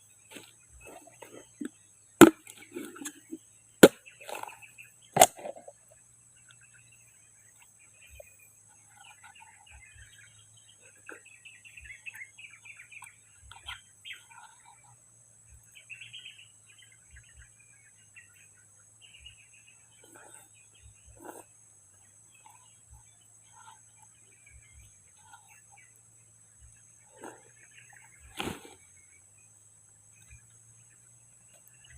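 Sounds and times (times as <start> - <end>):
faint birds chirping: 0.0 - 31.9
blade chopping coconut: 2.2 - 4.5.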